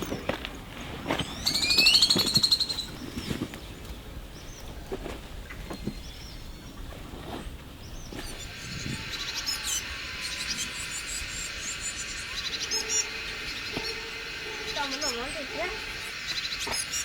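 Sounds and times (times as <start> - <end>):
bird whistling song: 1.2 - 3.4, 7.8 - 17.0.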